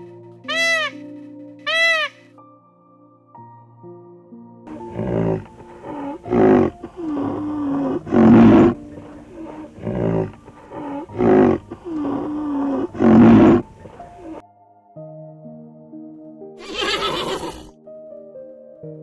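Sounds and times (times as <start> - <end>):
large animal calling: 0.4 - 1.0, 1.6 - 2.2, 4.7 - 14.4, 16.6 - 17.7.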